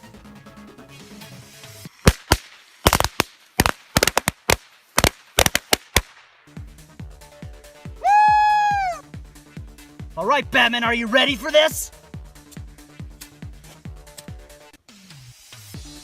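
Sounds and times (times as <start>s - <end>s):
background music: 0.0s - 2.8s, 6.4s - 16.0s
firecrackers banging: 2.0s - 6.2s.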